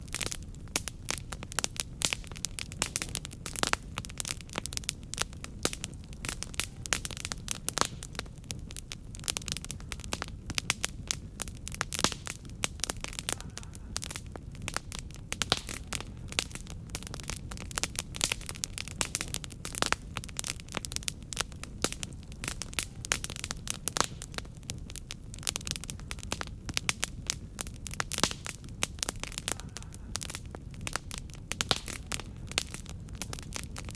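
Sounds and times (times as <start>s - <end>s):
low rumble of flames: 0.0s - 33.9s
wood fire crackling: 0.0s - 33.9s.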